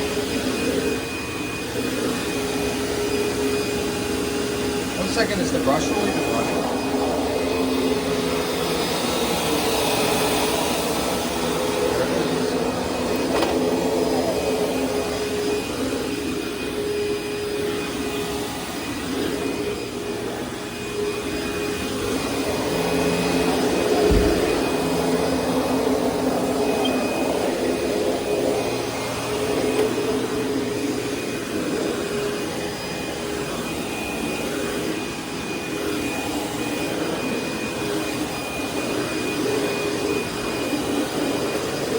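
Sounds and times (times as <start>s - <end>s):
vacuum cleaner whining: 0.0s - 41.9s
thump: 24.0s - 24.4s.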